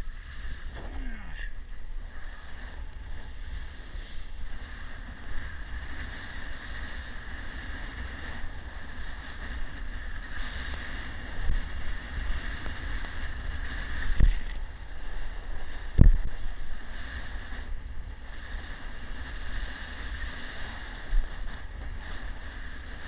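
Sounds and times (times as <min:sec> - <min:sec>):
wind buffeting microphone: 0:00.0 - 0:23.0
short low thump: 0:00.7 - 0:01.6.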